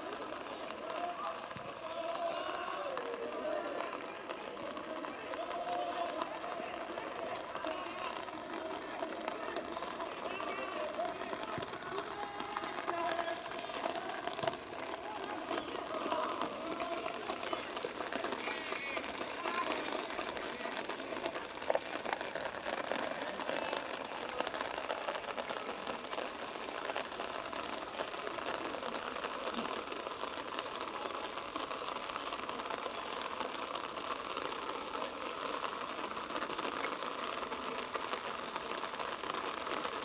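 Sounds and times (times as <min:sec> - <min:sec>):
players calling and shouting: 0:00.0 - 0:38.0
outdoor hiss: 0:00.0 - 0:40.0.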